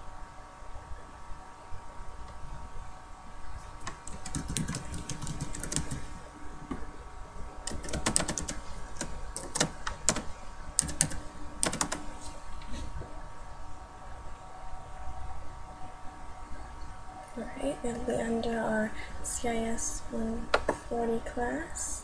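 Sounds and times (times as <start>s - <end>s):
steady hum: 0.0s - 22.0s
computer keyboard typing: 3.8s - 6.2s, 7.6s - 12.2s.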